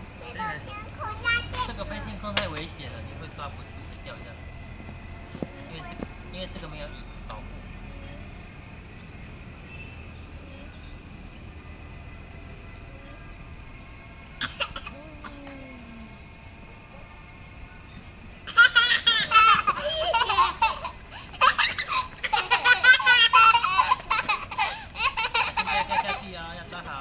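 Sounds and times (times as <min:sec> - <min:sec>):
child laughing hard: 0:18.5 - 0:26.3.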